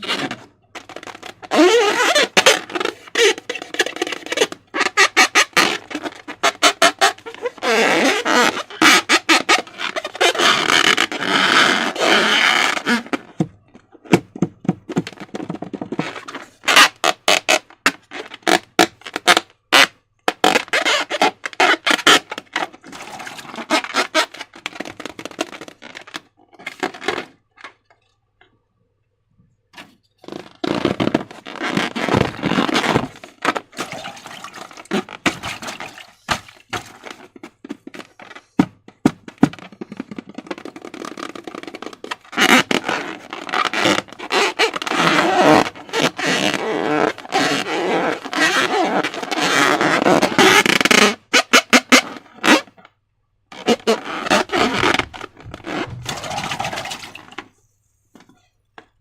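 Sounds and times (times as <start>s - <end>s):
slime squelching: 31.7s - 37.0s.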